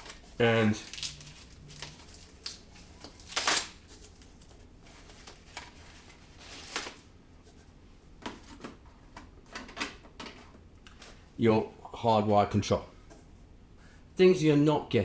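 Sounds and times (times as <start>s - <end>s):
packaging rustling: 0.0s - 7.1s.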